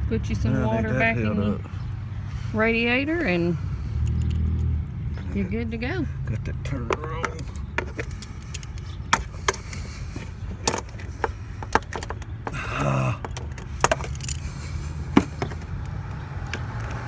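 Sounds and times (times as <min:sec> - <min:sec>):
road traffic rumble: 0:00.0 - 0:17.0
metal clicks of hand tools: 0:04.0 - 0:04.8, 0:06.9 - 0:12.4.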